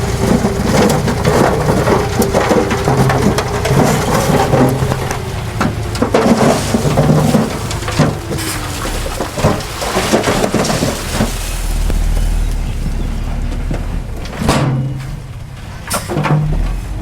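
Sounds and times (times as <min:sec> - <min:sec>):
rushing crackling noise: 0:00.0 - 0:16.0
diesel earthmoving machinery rumbling: 0:00.0 - 0:17.0.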